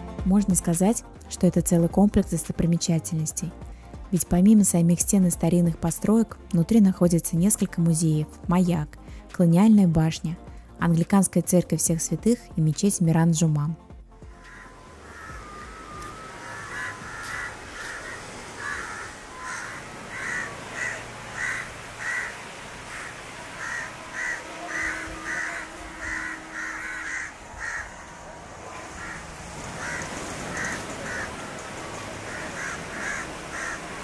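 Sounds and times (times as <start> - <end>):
outdoor background noise: 13.9 - 34.0
birds calling roughly: 14.3 - 34.0.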